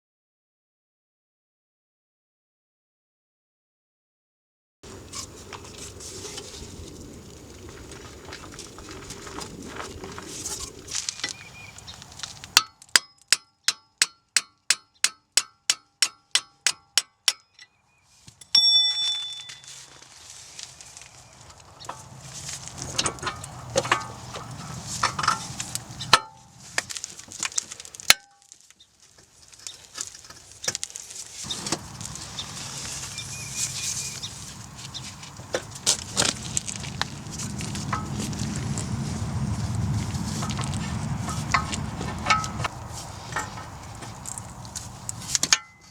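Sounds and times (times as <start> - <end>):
hammer striking metal: 12.6 - 17.7, 18.4 - 19.7
ringing metallic clang: 18.4 - 19.9, 45.5 - 45.9
tools and metal parts clinking: 18.4 - 20.0, 21.8 - 28.5, 45.2 - 45.9.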